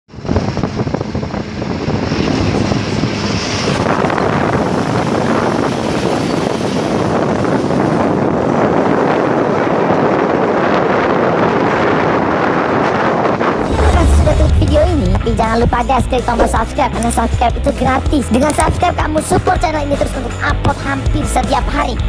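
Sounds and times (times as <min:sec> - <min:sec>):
truck engine and road noise: 0:00.1 - 0:12.1
wind buffeting microphone: 0:00.1 - 0:19.7.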